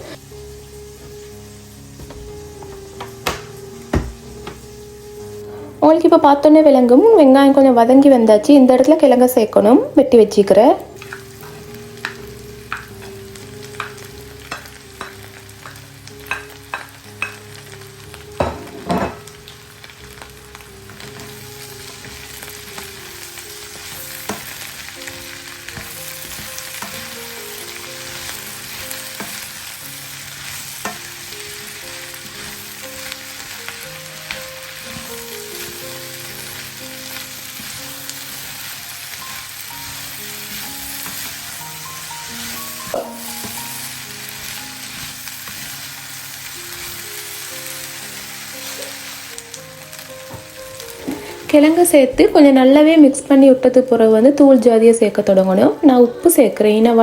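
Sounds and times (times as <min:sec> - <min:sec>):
onions sizzling in a pan: 0:00.0 - 0:57.0
potatoes clattering into pan: 0:01.9 - 0:04.7
knocks on the pan: 0:02.0 - 0:04.6.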